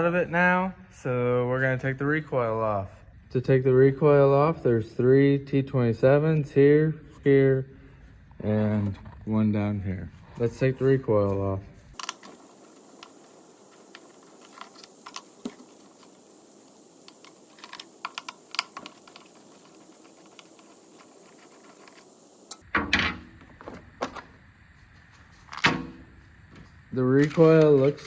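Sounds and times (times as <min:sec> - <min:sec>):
hand tools clicking and tapping: 0:12.0 - 0:22.7.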